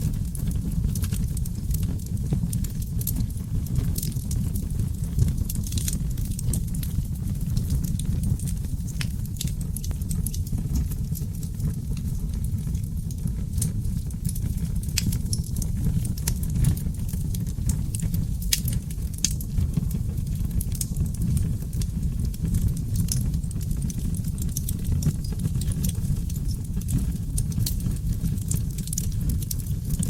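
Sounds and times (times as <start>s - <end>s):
fire burning with low roar: 0.0s - 30.0s
wood crackling and popping: 0.0s - 30.0s.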